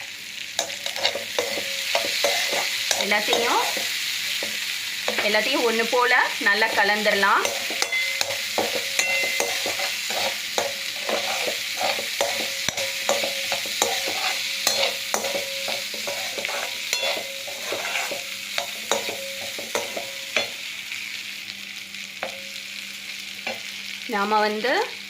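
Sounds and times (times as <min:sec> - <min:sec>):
food sizzling in oil: 0:00.0 - 0:25.0
spatula scraping a pan: 0:00.6 - 0:20.6.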